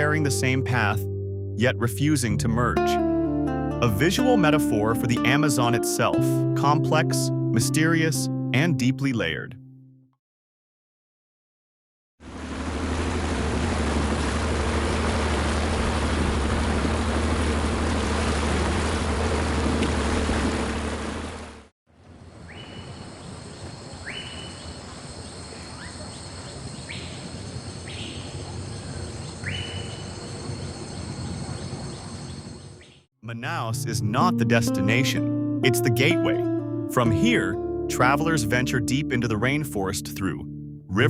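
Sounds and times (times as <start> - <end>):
boat motor droning: 12.2 - 21.7
rushing water: 12.2 - 21.7
insect drone: 22.2 - 32.8.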